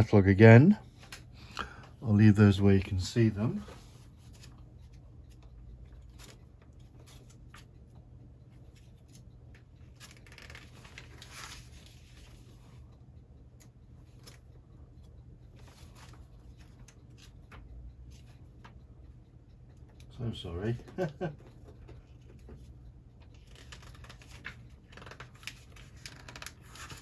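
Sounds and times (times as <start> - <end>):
paper pages rustling: 10.0 - 12.4, 23.3 - 27.0.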